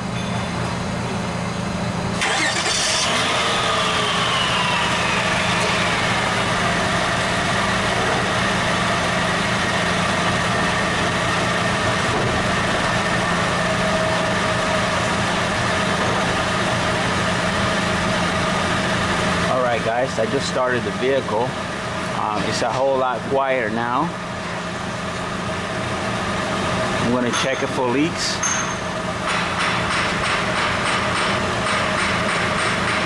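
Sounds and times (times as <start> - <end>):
car engine starting and idling: 2.1 - 8.7.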